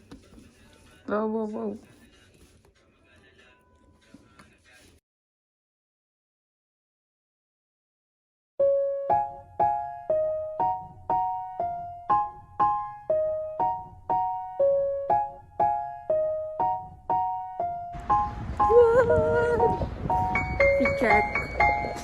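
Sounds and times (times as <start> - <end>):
soft keyboard melody: 8.6 - 22.0.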